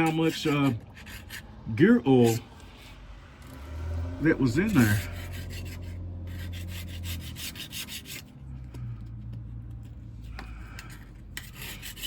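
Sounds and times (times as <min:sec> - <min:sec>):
hand scraper scraping gasket: 0:00.0 - 0:01.5, 0:04.5 - 0:08.3, 0:10.8 - 0:12.0.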